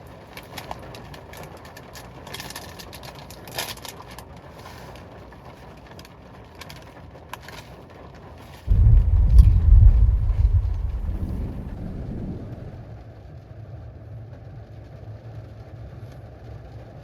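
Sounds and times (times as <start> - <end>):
raindrops ticking: 8.7 - 12.8
rain hissing: 8.7 - 12.9.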